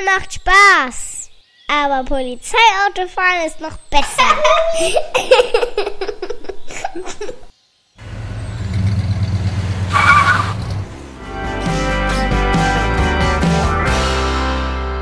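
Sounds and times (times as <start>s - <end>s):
children's voices: 0.0s - 5.9s
car engine sound effect: 8.0s - 12.9s.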